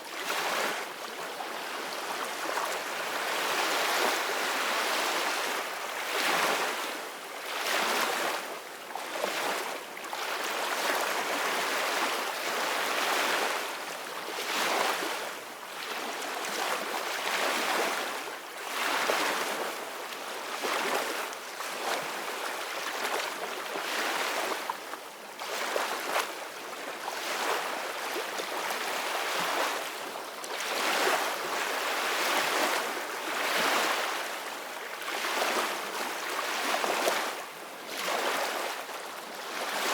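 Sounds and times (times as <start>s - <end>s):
ocean waves breaking on shore: 30.6s - 39.9s.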